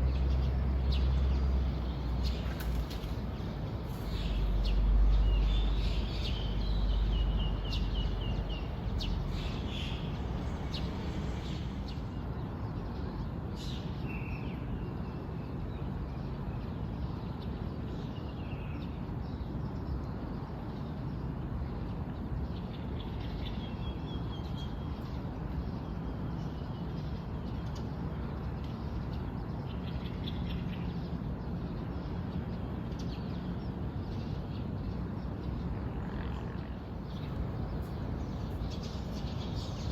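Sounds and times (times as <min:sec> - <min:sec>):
birds chirping and trilling: 0:00.0 - 0:12.2, 0:36.6 - 0:39.9
outdoor background hiss: 0:00.0 - 0:15.4, 0:22.8 - 0:39.9.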